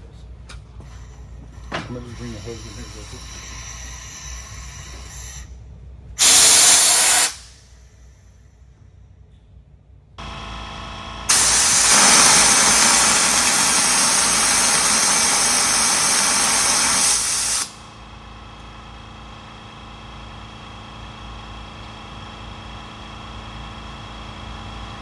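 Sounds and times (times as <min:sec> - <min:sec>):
air compressor running: 0:00.6 - 0:08.6, 0:10.2 - 0:25.0
compressed air hissing: 0:00.9 - 0:05.5, 0:06.2 - 0:08.0, 0:11.3 - 0:17.9.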